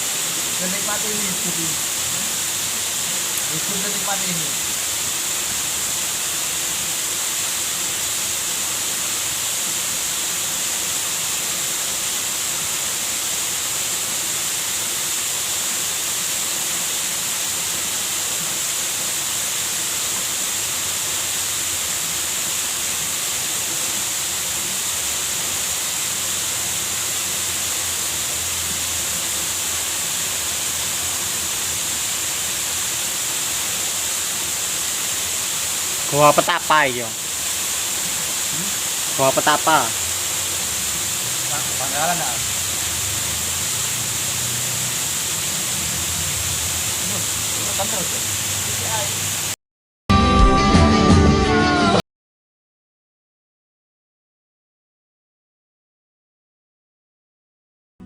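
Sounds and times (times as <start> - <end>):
waterfall rushing: 0.0 - 49.6.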